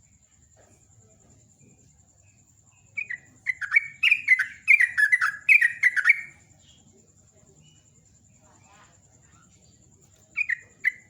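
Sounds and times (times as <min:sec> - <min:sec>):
bird singing bubbly chirps: 0:03.0 - 0:06.3.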